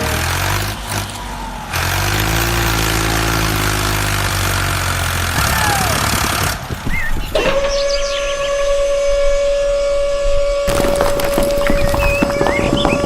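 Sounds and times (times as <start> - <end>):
vehicle engine humming: 0.0 - 13.0
siren tone: 7.3 - 13.0.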